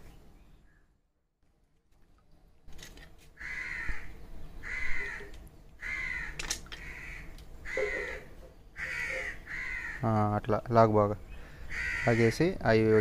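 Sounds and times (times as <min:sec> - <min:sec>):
bird calling: 0:03.4 - 0:10.1, 0:11.2 - 0:13.0.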